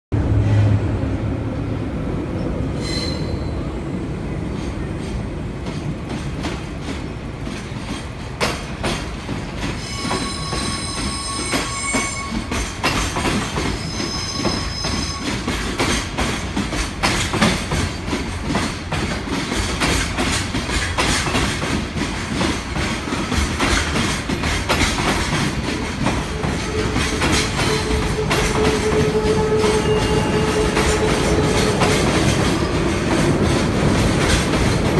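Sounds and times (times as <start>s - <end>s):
high-pitched wheel squeals: 2.8s - 3.7s, 9.8s - 12.7s, 13.6s - 15.6s, 26.2s - 32.0s
train wheels clattering over rail joints: 4.5s - 34.9s.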